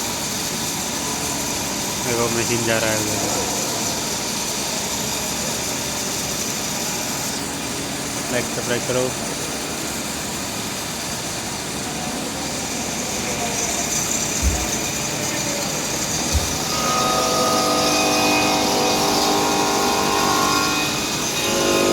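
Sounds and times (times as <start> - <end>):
construction machine engine: 0.0 - 20.2
low thumps: 14.0 - 15.4, 16.0 - 17.1.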